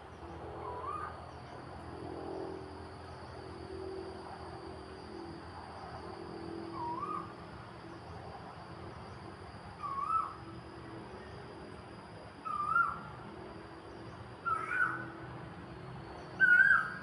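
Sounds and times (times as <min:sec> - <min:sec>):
high insect drone: 0:00.0 - 0:17.0
bird calling wavering note: 0:09.8 - 0:10.4, 0:12.4 - 0:13.1, 0:14.4 - 0:15.1, 0:16.4 - 0:17.0.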